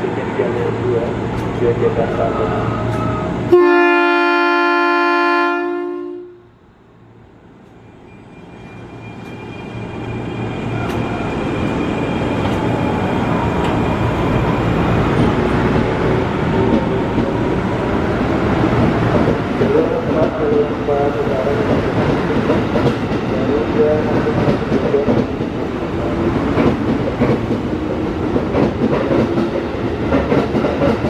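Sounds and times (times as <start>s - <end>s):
train passing rumble: 0.0s - 31.0s
two-note train horn: 3.5s - 6.5s.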